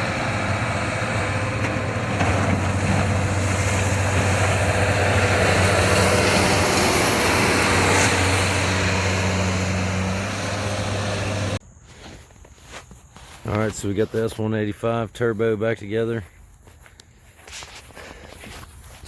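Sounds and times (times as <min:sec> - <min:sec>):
diesel engine running: 0:00.0 - 0:11.6.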